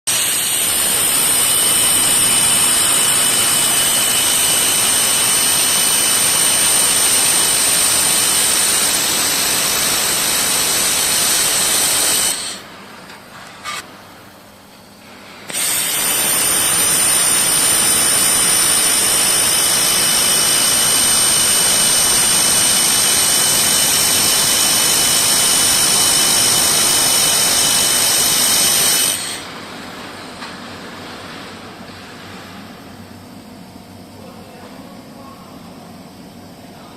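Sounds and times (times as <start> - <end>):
laser welder hissing: 0.1 - 12.8, 15.4 - 29.5.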